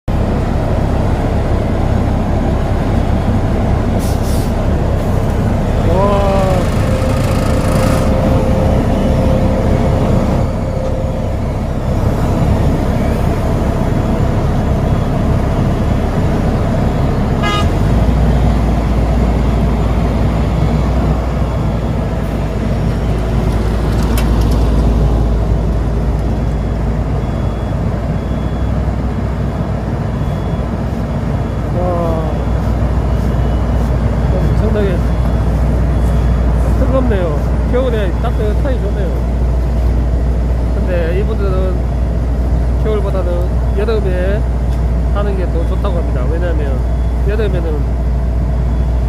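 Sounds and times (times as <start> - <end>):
deep engine note: 0.1 - 29.1
diesel paving machinery running: 0.1 - 49.0
horn toot: 17.4 - 17.9.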